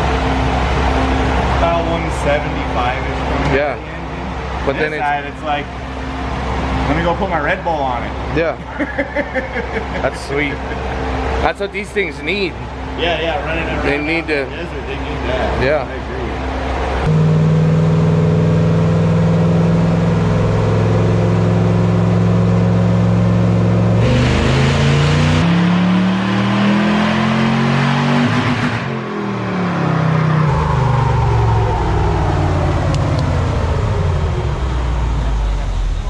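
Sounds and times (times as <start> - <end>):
truck engine revving under load: 16.3 - 36.0.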